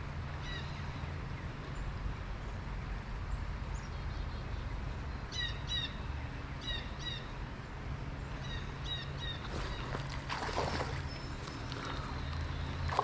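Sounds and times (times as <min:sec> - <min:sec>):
low background hum: 0:00.0 - 0:13.0
rustling and crunching: 0:09.5 - 0:12.2.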